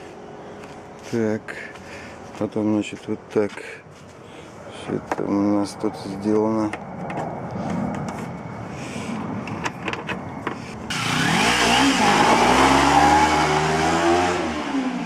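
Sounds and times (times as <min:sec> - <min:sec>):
vehicle engine revving: 0:10.9 - 0:15.0.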